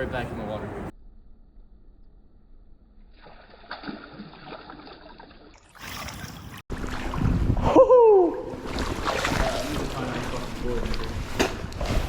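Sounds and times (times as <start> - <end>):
wind buffeting microphone: 6.8 - 8.7.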